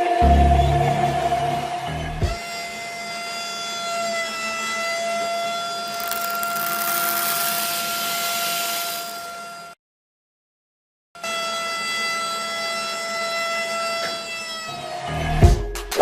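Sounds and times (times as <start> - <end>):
hiss: 6.0 - 9.3.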